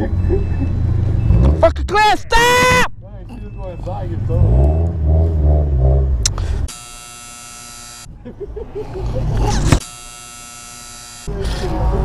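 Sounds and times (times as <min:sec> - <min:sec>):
low rumbling: 0:00.0 - 0:06.7
electronic buzz: 0:06.7 - 0:08.1, 0:09.7 - 0:11.3.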